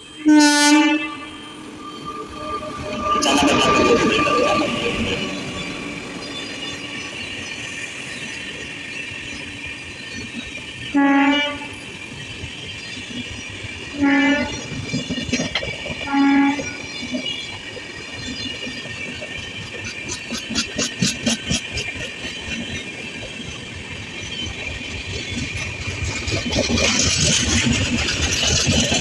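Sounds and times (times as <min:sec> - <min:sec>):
train horn blasts: 0:00.0 - 0:05.0, 0:10.9 - 0:11.8, 0:14.0 - 0:14.6, 0:16.0 - 0:16.8
train coaches rumbling: 0:00.0 - 0:29.0
wheels clicking over rail joints: 0:14.4 - 0:29.0.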